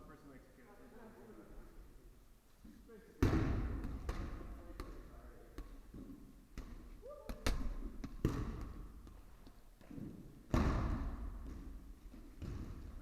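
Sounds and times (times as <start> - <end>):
balls smacking on gym floor: 3.2 - 13.0.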